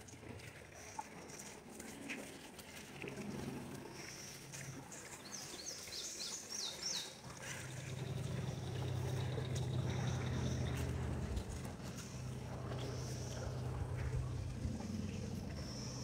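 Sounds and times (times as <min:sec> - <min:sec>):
low steady hum: 0:00.0 - 0:16.0
bird chirping: 0:05.2 - 0:16.0.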